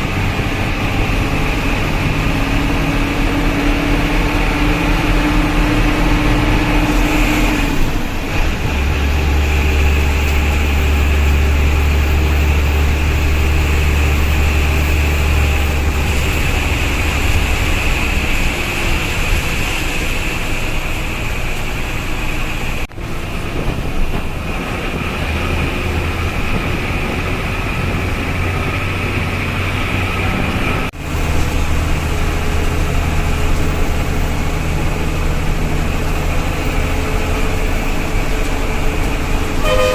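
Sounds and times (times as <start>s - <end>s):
diesel bus engine running: 0.0s - 39.9s
road noise: 0.0s - 39.9s.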